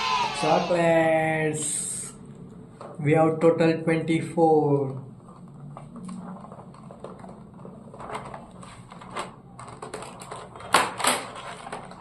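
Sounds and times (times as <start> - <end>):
packaging clicks and rustles: 5.2 - 12.0.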